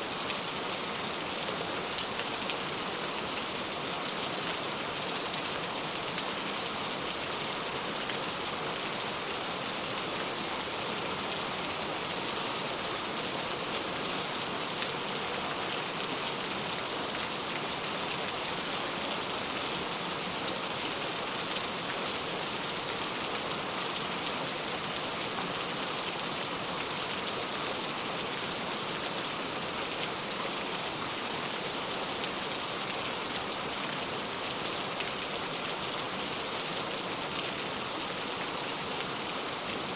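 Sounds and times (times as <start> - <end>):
rain falling on ground: 0.0 - 39.9.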